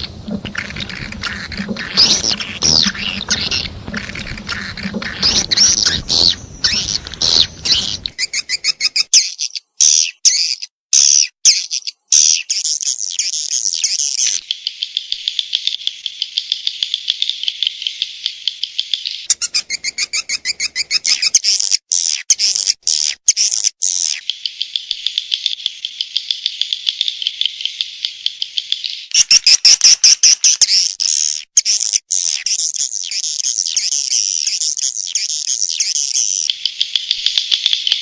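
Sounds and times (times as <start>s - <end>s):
swiftlets twittering chirps: 0.0s - 8.1s.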